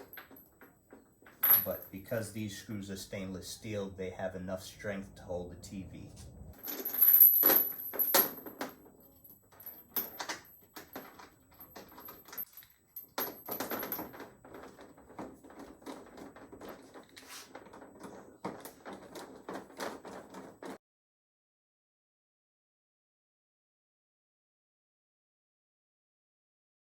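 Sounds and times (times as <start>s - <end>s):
chain clinking and rattling: 0.0s - 2.1s, 6.6s - 20.8s.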